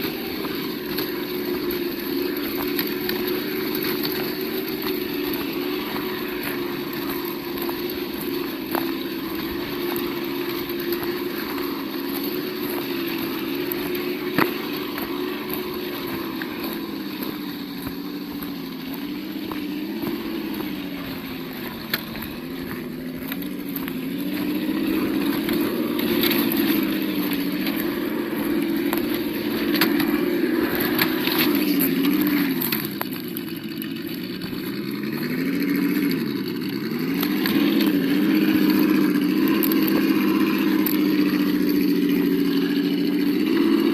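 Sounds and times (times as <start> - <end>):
simulated engine note: 0.0 - 43.9.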